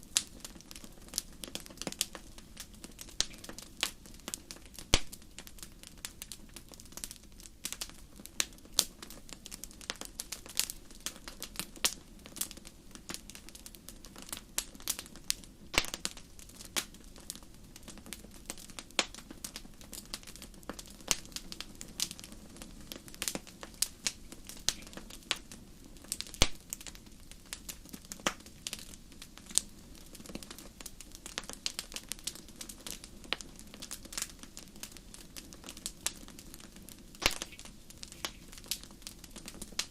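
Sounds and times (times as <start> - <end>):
campfire crackling: 0.0 - 39.9
faint low background noise: 0.0 - 39.9.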